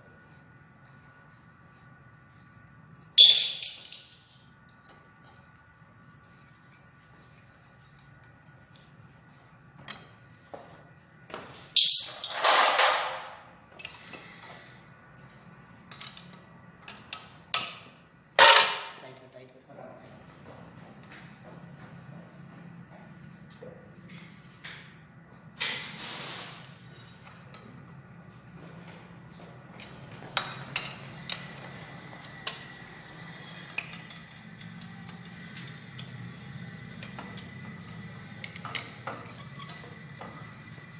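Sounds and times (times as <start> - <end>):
metal tools clanking: 3.2 - 4.2, 11.8 - 14.3.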